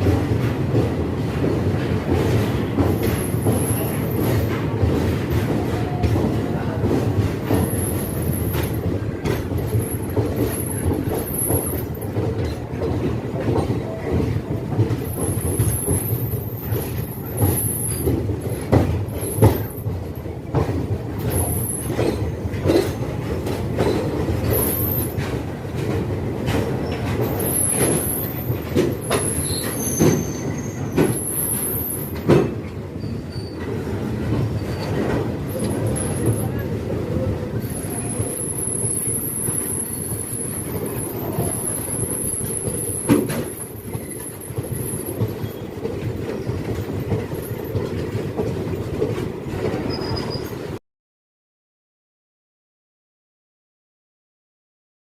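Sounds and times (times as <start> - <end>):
train wheels rumbling on rails: 0.0 - 50.8
high-pitched wheel squeals: 29.2 - 32.0.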